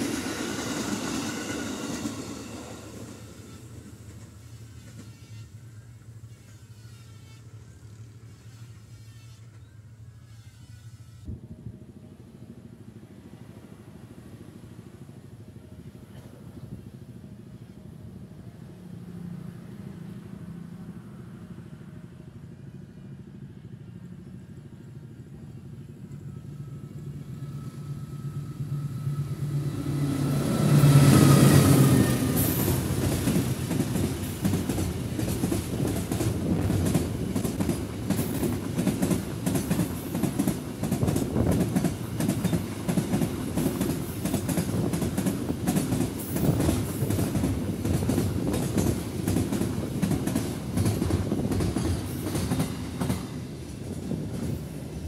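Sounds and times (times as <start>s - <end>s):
diesel locomotive engine: 0.0s - 55.0s
wheels clacking over rail joints: 30.2s - 55.0s.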